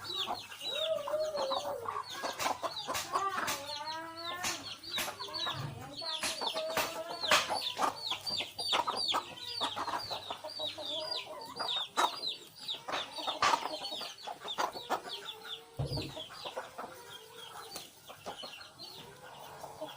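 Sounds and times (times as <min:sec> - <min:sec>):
chicks peeping: 0:00.0 - 0:19.9
low thump: 0:15.8 - 0:16.2.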